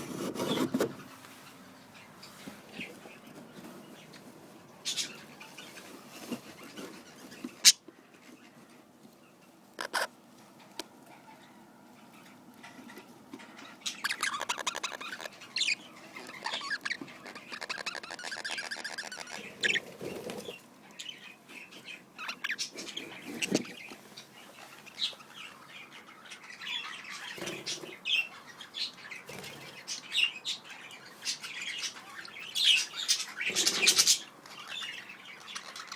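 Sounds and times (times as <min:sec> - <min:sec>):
budgerigars chirping: 0:01.9 - 0:07.8, 0:09.8 - 0:10.2, 0:11.0 - 0:35.9
wings fluttering in cage: 0:17.6 - 0:20.6, 0:27.3 - 0:28.0, 0:29.2 - 0:29.9, 0:33.4 - 0:34.2.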